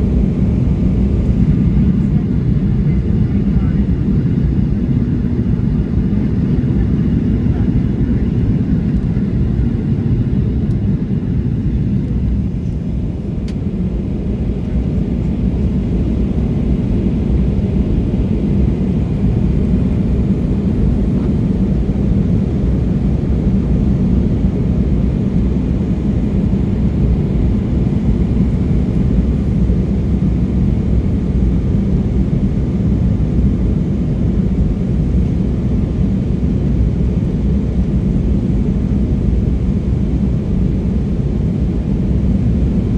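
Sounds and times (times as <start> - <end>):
jet engine drone: 0.0 - 42.9.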